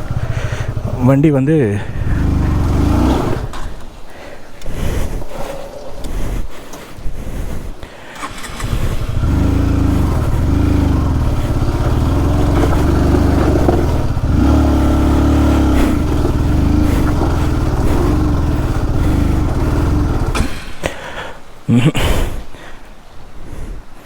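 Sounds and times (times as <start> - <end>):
motorcycle engine revving: 0.0 - 4.0, 8.2 - 20.9.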